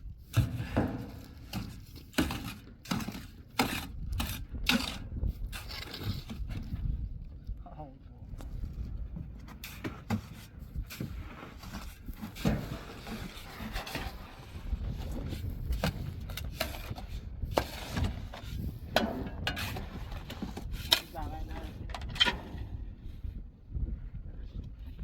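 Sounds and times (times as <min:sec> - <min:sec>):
steady low rumble: 0:04.1 - 0:09.7.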